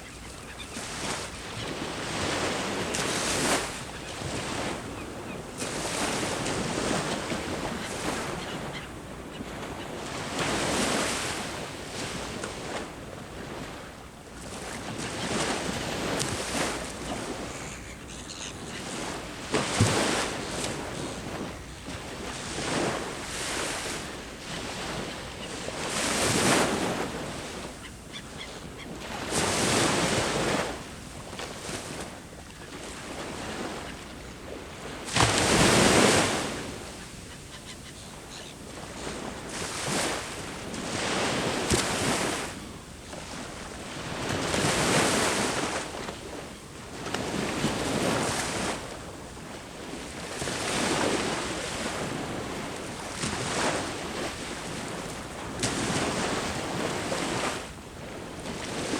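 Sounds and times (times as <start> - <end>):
sea waves breaking on shore: 0.0 - 58.9.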